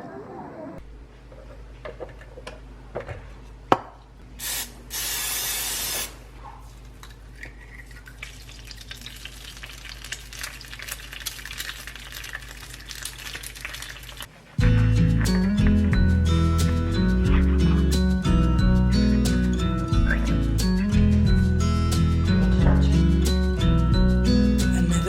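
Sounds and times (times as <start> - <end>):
short bursts of hiss: 4.4 - 6.2.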